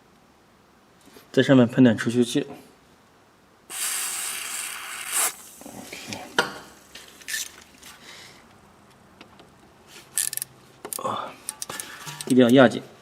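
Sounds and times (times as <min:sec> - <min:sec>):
aerosol can spraying: 0:03.7 - 0:06.0.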